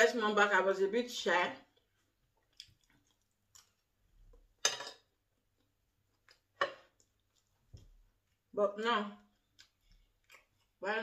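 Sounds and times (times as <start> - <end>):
person chewing rice: 1.7 - 4.6, 5.2 - 8.5, 9.2 - 10.8.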